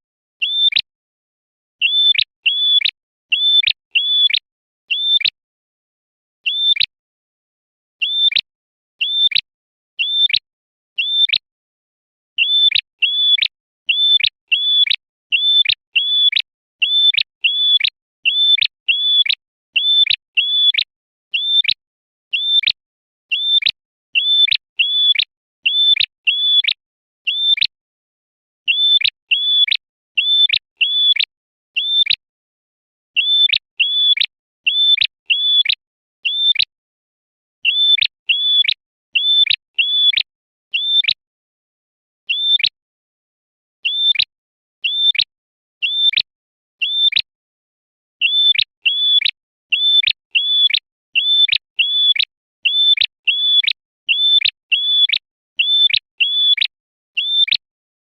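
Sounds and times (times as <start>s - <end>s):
bird chirping: 0.4s - 0.8s, 1.8s - 5.4s, 6.4s - 6.9s, 8.0s - 8.4s, 9.0s - 9.4s, 10.0s - 10.4s, 11.0s - 11.4s, 12.4s - 22.7s, 23.3s - 27.7s, 28.7s - 32.2s, 33.2s - 36.6s, 37.6s - 41.2s, 42.3s - 42.7s, 43.8s - 45.2s, 45.8s - 46.2s, 46.8s - 47.3s, 48.2s - 57.6s.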